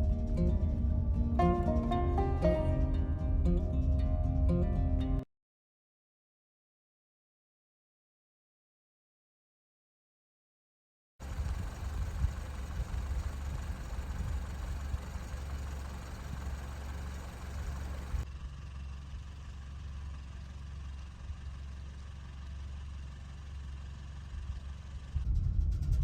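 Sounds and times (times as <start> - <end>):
car engine rumble: 0.0 - 5.2, 11.2 - 26.0
road noise: 0.0 - 5.2, 11.2 - 25.3.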